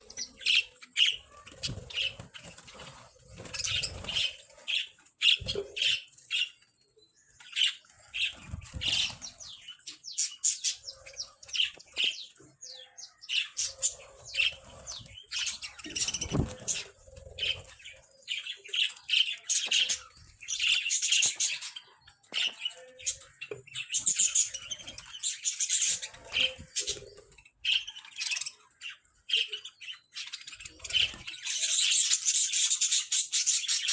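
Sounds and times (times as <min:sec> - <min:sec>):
budgerigars chirping and warbling: 0:00.0 - 0:33.9
dull thuds and flutters: 0:16.1 - 0:16.8.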